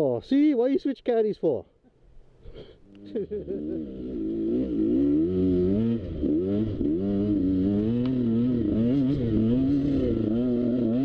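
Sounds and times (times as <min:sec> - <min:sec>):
dirt bike engine revving: 0:03.1 - 0:11.0.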